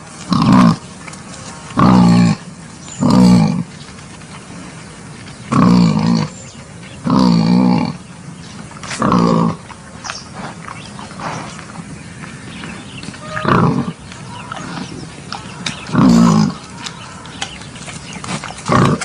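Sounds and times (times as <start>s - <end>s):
wild boar calls: 0.3s - 3.7s, 8.8s - 9.8s, 12.1s - 19.0s.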